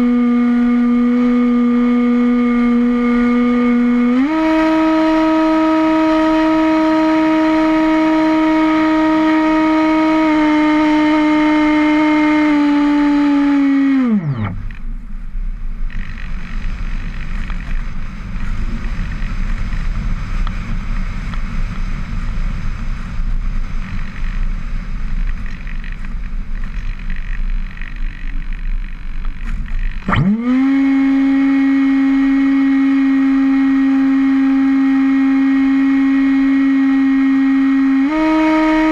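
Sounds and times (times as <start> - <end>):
model airplane motor whining: 0.0 - 14.9, 26.7 - 38.9
rushing wind: 13.7 - 30.7.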